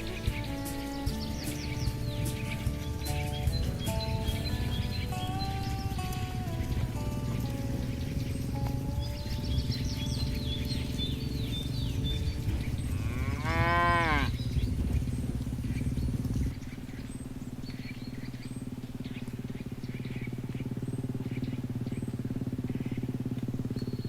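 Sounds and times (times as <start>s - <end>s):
cow mooing: 3.9s - 14.5s.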